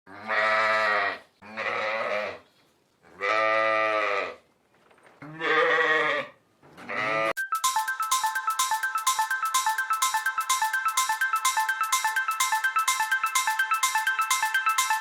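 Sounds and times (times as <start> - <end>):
goat or sheep bleating: 0.1 - 2.4, 3.1 - 4.4, 5.2 - 7.4.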